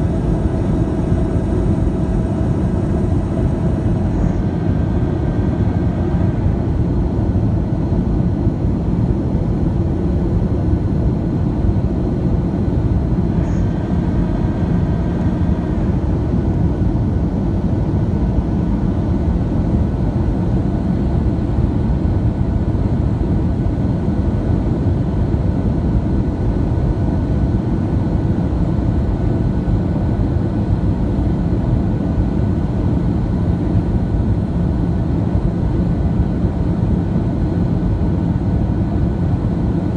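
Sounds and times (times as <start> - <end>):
airliner cabin rumble: 0.0 - 9.1, 11.3 - 18.6.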